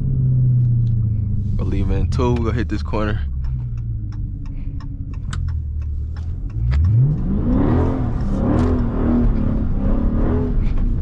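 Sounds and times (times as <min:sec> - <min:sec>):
car engine revving hard: 0:06.5 - 0:11.0.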